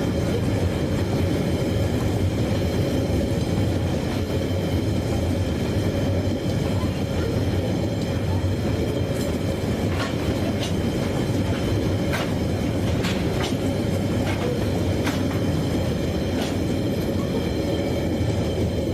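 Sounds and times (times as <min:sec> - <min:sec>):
train rumbling: 0:00.0 - 0:18.9.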